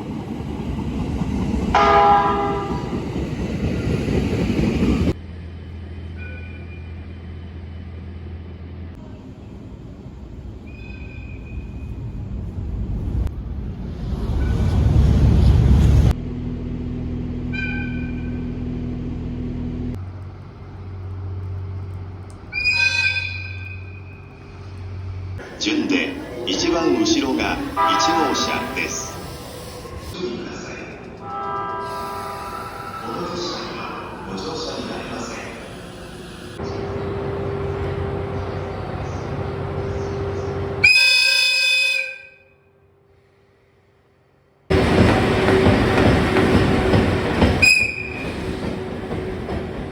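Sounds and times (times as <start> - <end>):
train rumbling: 0.0 - 49.9
train horn: 1.7 - 2.9, 26.6 - 29.2, 31.2 - 33.4, 40.6 - 42.6.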